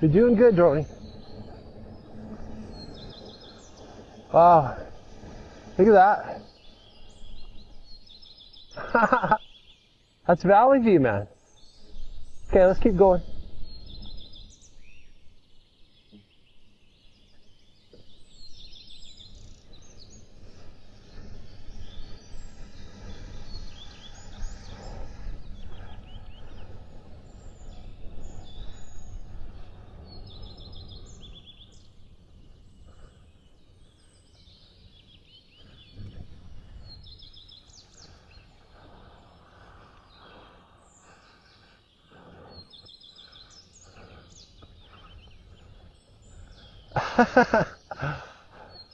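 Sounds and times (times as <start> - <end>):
wind rumbling on microphone: 0.0 - 9.4, 10.3 - 48.9
songbirds chirping: 0.0 - 48.9.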